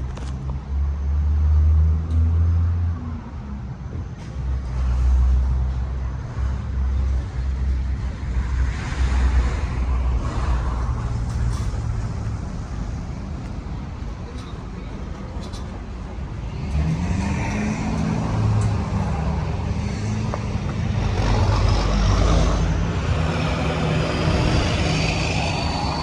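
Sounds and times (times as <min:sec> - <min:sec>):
vehicle engine rumbling: 0:00.0 - 0:26.0
rushing wash of noise: 0:07.3 - 0:26.0.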